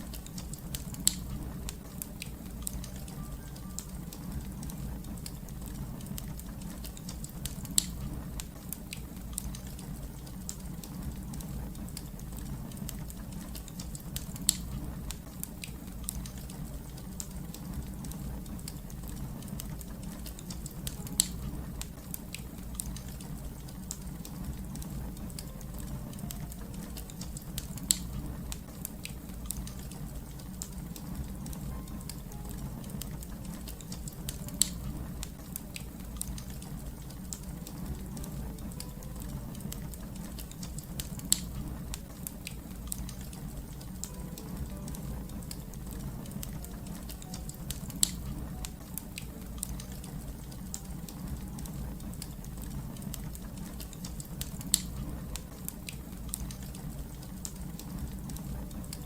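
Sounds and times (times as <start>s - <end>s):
low rumble: 0.0s - 3.3s, 4.0s - 8.6s, 15.9s - 53.8s
loud fire snaps: 0.0s - 59.0s
wood fire crackling: 0.0s - 59.0s.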